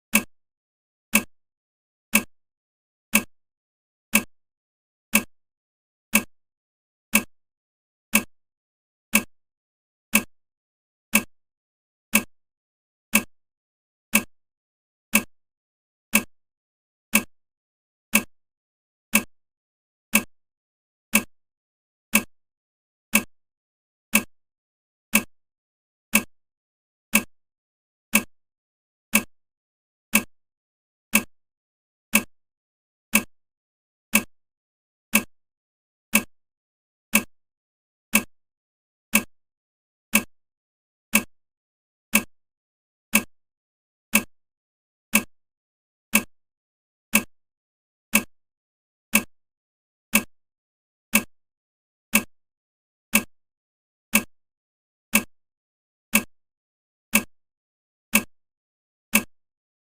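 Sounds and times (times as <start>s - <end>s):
clock ticking: 0.1s - 0.3s, 1.1s - 1.3s, 2.1s - 2.3s, 3.1s - 3.3s, 4.1s - 4.3s, 5.1s - 5.3s, 6.1s - 6.3s, 7.1s - 7.3s, 8.1s - 8.3s, 9.1s - 9.3s, 10.1s - 10.3s, 11.1s - 11.3s, 12.1s - 12.3s, 13.1s - 13.3s, 14.1s - 14.3s, 15.1s - 15.3s, 16.1s - 16.3s, 17.1s - 17.3s, 18.1s - 18.3s, 19.1s - 19.3s, 20.1s - 20.3s, 21.1s - 21.3s, 22.1s - 22.3s, 23.1s - 23.3s, 24.1s - 24.3s, 25.1s - 25.3s, 26.1s - 26.3s, 27.1s - 27.3s, 28.1s - 28.3s, 29.1s - 29.3s, 30.1s - 30.3s, 31.1s - 31.3s, 32.1s - 32.3s, 33.1s - 33.3s, 34.1s - 34.3s, 35.1s - 35.3s, 36.1s - 36.3s, 37.1s - 37.3s, 38.1s - 38.3s, 39.1s - 39.3s, 40.1s - 40.3s, 41.1s - 41.3s, 42.1s - 42.3s, 43.1s - 43.3s, 44.1s - 44.3s, 45.1s - 45.3s, 46.1s - 46.3s, 47.1s - 47.3s, 48.1s - 48.3s, 49.1s - 49.3s, 50.1s - 50.3s, 51.1s - 51.3s, 52.1s - 52.3s, 53.1s - 53.3s, 54.1s - 54.3s, 55.1s - 55.3s, 56.1s - 56.3s, 57.1s - 57.3s, 58.1s - 58.3s, 59.1s - 59.3s.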